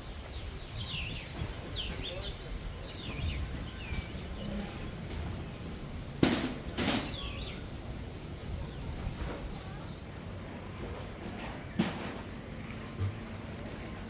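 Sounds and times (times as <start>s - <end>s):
sharp knocks: 6.2s - 7.3s.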